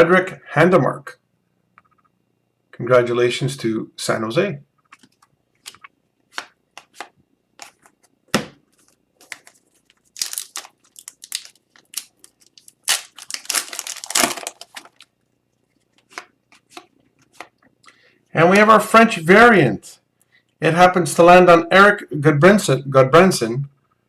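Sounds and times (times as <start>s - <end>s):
trading cards snapping and rustling: 4.9s - 15.1s.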